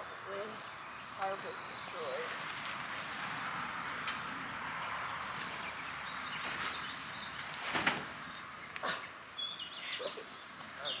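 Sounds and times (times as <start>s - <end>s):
steady outdoor hiss: 0.0s - 11.0s
birds chirping: 8.2s - 11.0s.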